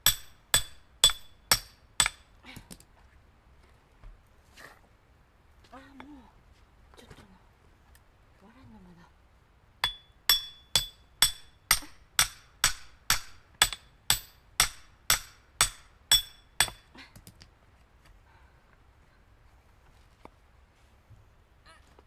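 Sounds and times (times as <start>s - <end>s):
hammer striking metal wedge: 0.0s - 2.3s, 9.8s - 16.9s.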